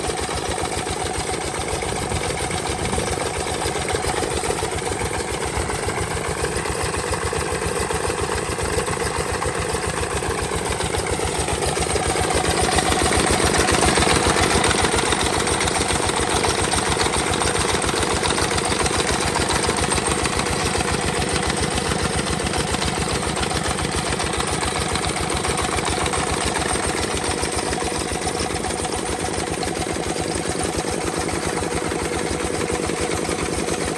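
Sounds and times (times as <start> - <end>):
diesel engine chugging: 0.0 - 33.9.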